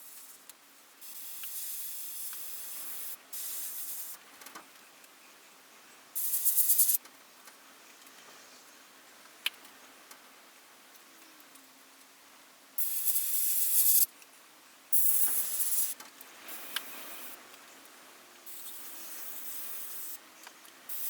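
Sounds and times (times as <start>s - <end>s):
airbrush spraying paint: 0.0s - 0.4s, 1.0s - 4.2s, 6.2s - 7.0s, 12.8s - 14.1s, 15.0s - 17.4s, 18.5s - 20.2s.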